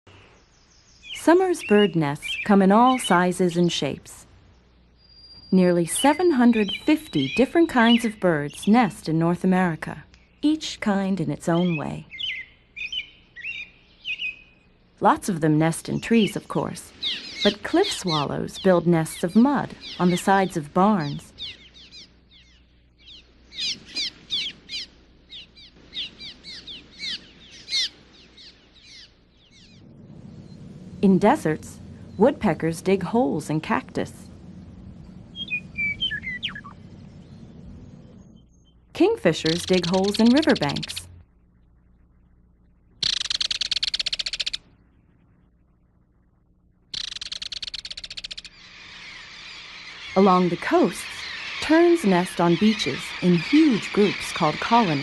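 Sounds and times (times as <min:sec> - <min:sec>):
swallows chirping: 0:15.8 - 0:31.2, 0:34.2 - 0:41.2, 0:47.0 - 0:55.0
kingfisher rattle call: 0:43.0 - 0:44.6, 0:47.0 - 0:55.0.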